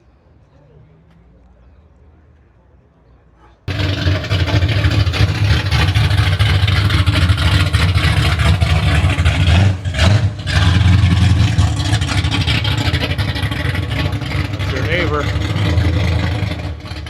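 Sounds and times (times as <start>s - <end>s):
car engine running: 3.7s - 17.0s.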